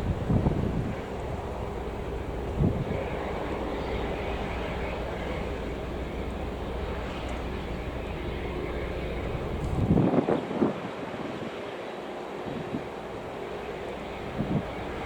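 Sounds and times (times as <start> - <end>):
wind gust on microphone: 0.0 - 11.7, 12.4 - 15.0
jet engines running: 0.0 - 15.0.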